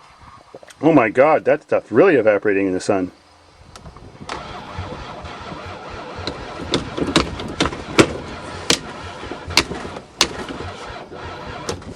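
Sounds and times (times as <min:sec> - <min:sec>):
engine cranking: 0:03.8 - 0:11.9
sharp engine cracks: 0:03.8 - 0:11.9.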